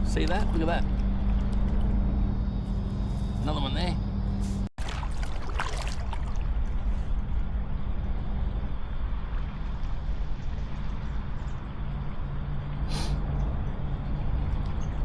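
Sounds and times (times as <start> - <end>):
steady low rumble: 0.0 - 15.0
paddle strokes splashing in water: 4.8 - 6.8.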